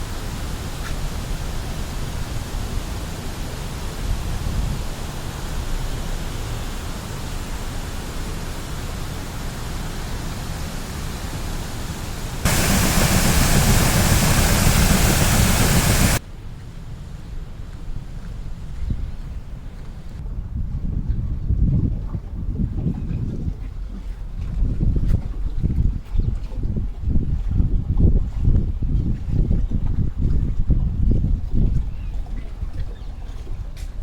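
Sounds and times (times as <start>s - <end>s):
outdoor rushing noise: 10.9s - 16.2s.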